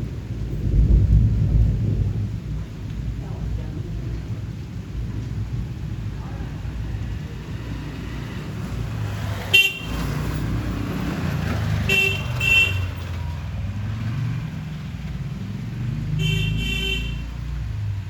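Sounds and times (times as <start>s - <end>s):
low rumble of engines: 0.0s - 18.0s
vehicle horn toots: 9.5s - 10.1s, 11.8s - 13.1s, 16.2s - 17.3s.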